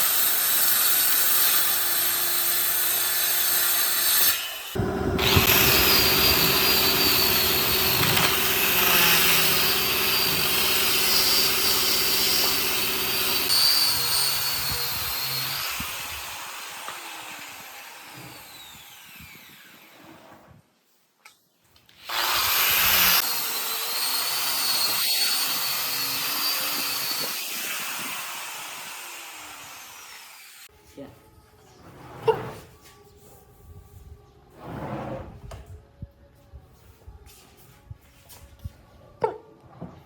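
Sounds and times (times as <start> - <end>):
power tool running: 1.5 - 19.9, 22.0 - 30.7
falling whine of motor: 4.8 - 8.8.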